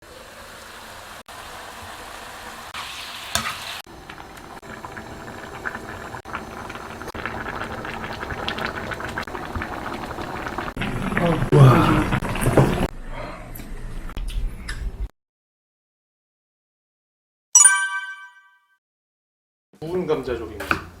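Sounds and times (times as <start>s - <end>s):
food sizzling and bubbling: 0.0s - 12.9s.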